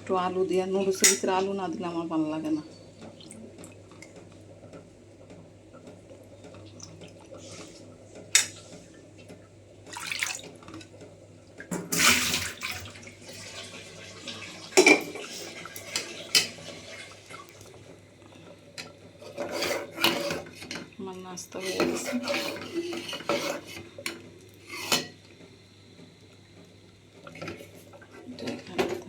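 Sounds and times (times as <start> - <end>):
water splashing: 9.9 - 10.9
pots and utensils clattering: 11.7 - 17.2, 18.8 - 20.9, 21.6 - 25.2, 27.2 - 29.0.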